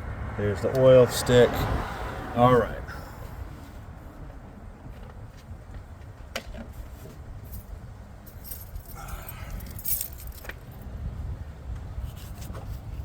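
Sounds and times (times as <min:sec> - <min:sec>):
low steady rumble: 0:07.4 - 0:13.0
keys jangling: 0:07.5 - 0:10.8.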